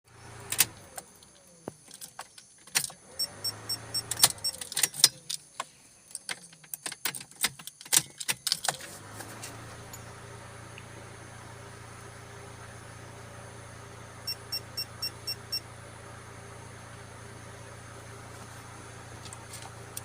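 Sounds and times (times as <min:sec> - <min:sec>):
car keys jangling in ignition: 0:00.4 - 0:05.5, 0:06.1 - 0:09.0
steady low hum: 0:09.4 - 0:20.0.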